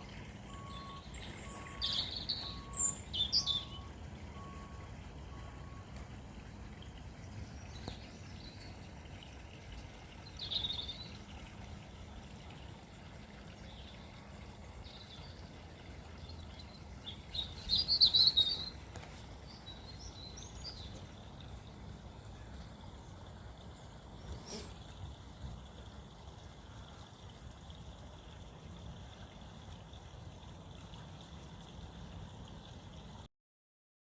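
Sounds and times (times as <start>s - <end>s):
small birds chirping: 0.0s - 4.8s, 10.2s - 11.2s, 16.1s - 21.7s.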